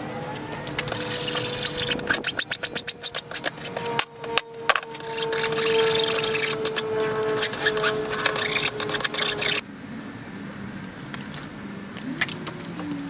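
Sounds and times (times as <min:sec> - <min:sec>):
steady tool whine: 0:00.0 - 0:13.0
scraping on wood: 0:00.2 - 0:09.6.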